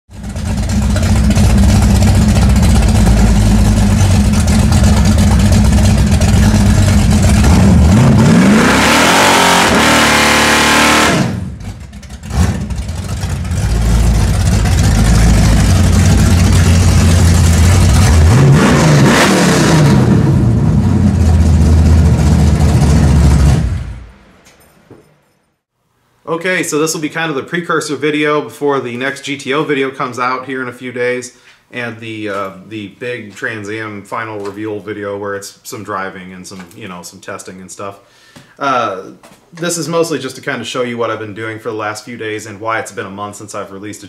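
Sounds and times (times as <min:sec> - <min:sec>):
car engine idling and revving: 0:00.1 - 0:24.2
tyres spinning in burnout: 0:00.2 - 0:23.8.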